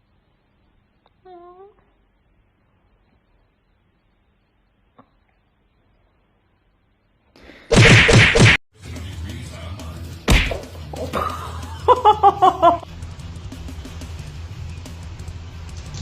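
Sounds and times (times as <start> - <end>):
sharp smack: 7.7 - 8.6, 10.3 - 10.7.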